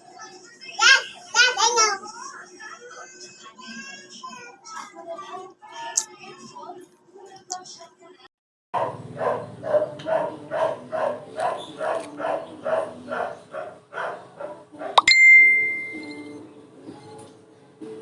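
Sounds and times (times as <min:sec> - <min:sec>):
dog barking: 0:08.8 - 0:15.0
sharp metallic ding: 0:15.0 - 0:16.3.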